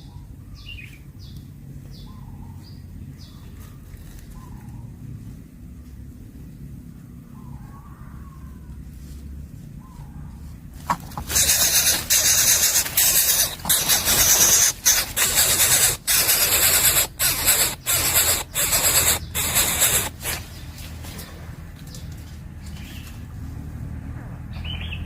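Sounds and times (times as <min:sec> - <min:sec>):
bird chick hissing rasps: 0:11.2 - 0:20.5.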